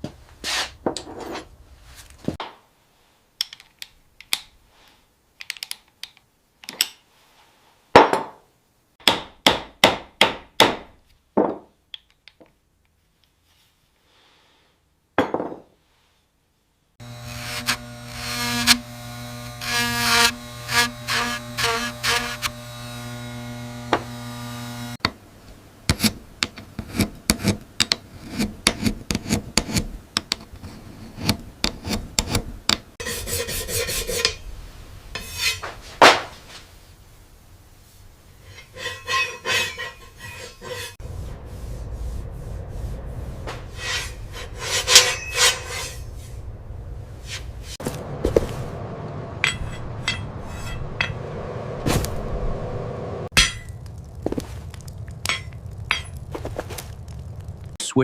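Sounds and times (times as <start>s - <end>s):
file scraping steel blade: 17.0s - 25.0s, 33.0s - 34.4s, 35.2s - 35.7s, 38.4s - 41.0s, 43.7s - 46.4s, 47.2s - 47.8s, 49.4s - 51.2s
steady low noise: 41.0s - 44.4s.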